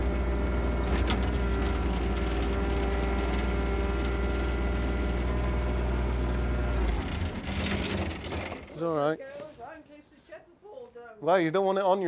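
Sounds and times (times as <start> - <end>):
engine deep hum: 0.0 - 8.8.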